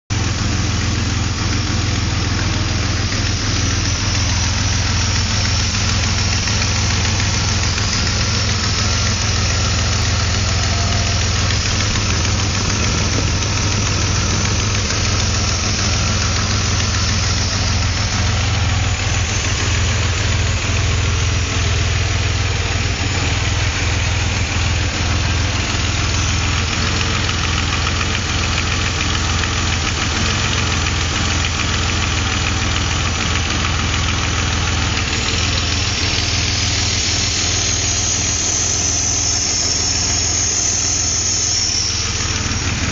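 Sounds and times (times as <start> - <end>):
steady hiss: 35.2 - 42.9.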